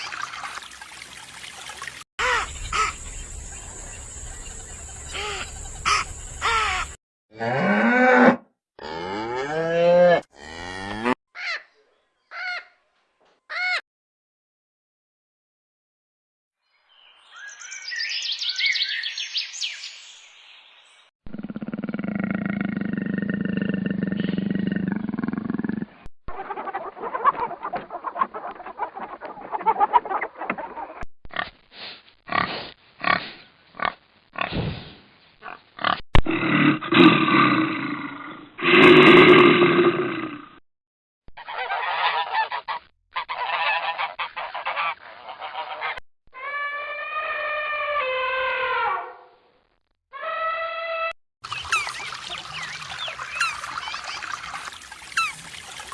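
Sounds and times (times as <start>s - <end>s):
loud repeated animal calls: 2.2s - 3.0s, 5.1s - 8.4s, 41.4s - 49.2s
long low animal call: 21.3s - 26.0s
high quick chirping calls: 51.4s - 55.6s.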